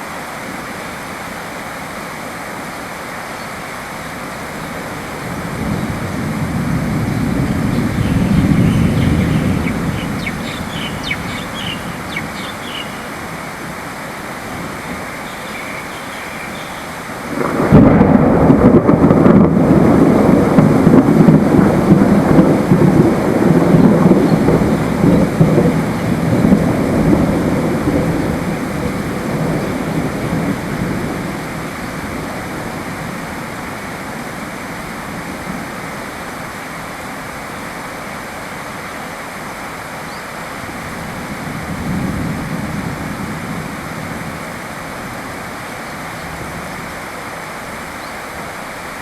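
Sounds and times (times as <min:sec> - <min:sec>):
steady rain: 0:00.0 - 0:49.0
thunder rumbling: 0:04.7 - 0:34.5, 0:40.8 - 0:45.4.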